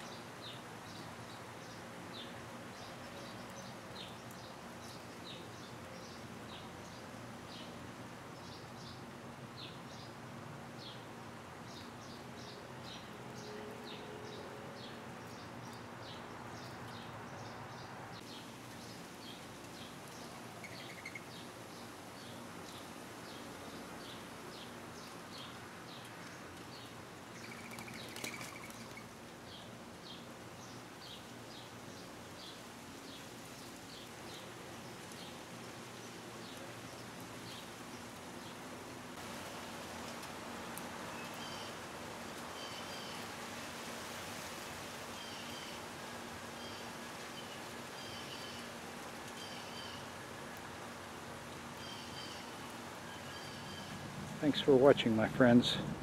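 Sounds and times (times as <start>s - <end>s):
faint outdoor hiss: 0.0s - 56.0s
small bird chirping: 18.8s - 21.5s, 27.4s - 29.1s.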